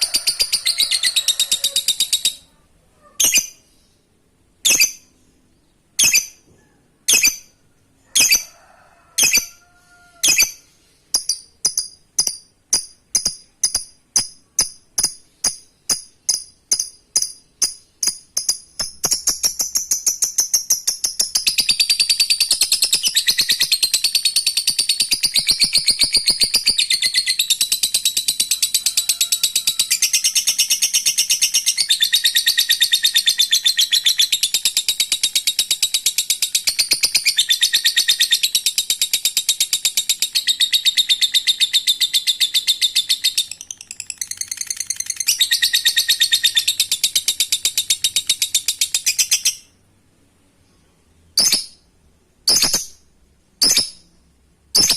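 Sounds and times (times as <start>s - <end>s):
lovebird chattering trill: 0.0s - 2.5s, 11.2s - 49.7s.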